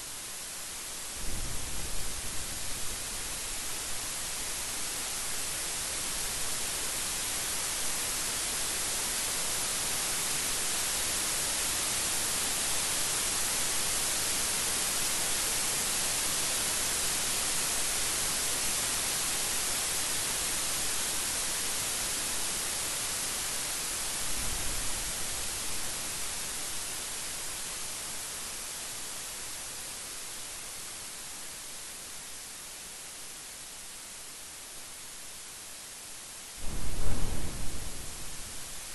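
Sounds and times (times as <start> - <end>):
heavy rain hissing: 0.0 - 35.3, 35.9 - 38.9
low rumble: 36.6 - 38.9.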